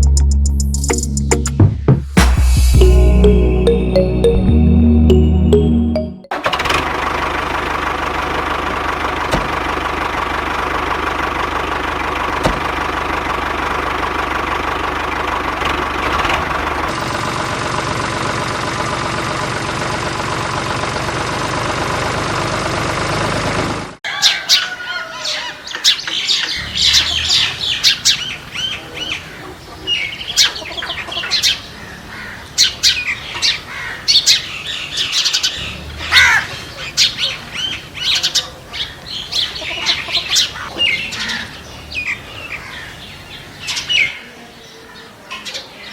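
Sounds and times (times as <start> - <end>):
birds chirping and squawking: 24.1 - 45.9.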